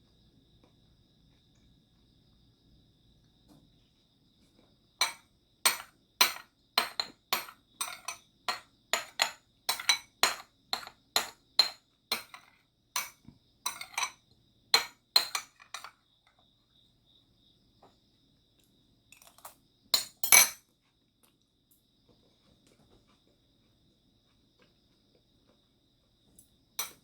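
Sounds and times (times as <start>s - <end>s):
utensils clinking against dishes: 5.0s - 14.2s, 20.0s - 20.6s.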